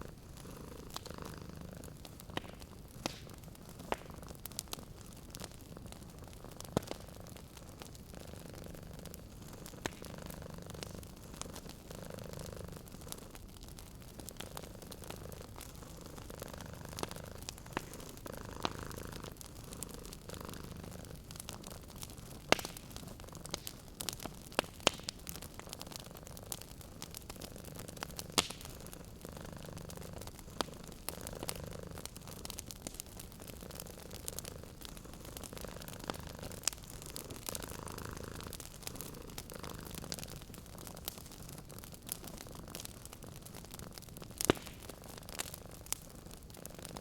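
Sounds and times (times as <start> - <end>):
cat purring: 0.0 - 47.0
wood fire crackling in fireplace: 0.0 - 47.0.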